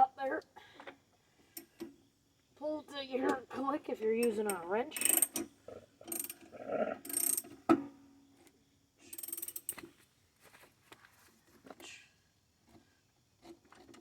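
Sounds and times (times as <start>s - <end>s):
socket ratchet clicking: 4.2s - 7.6s, 9.1s - 9.8s.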